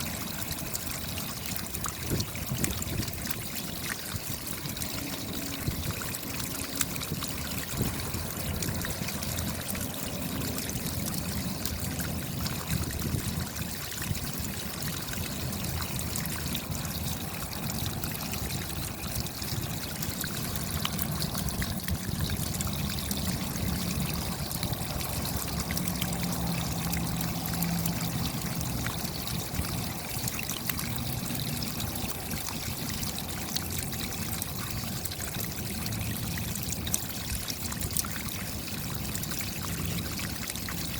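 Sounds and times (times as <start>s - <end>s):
running water: 0.0s - 40.9s
rain pattering: 20.5s - 30.0s.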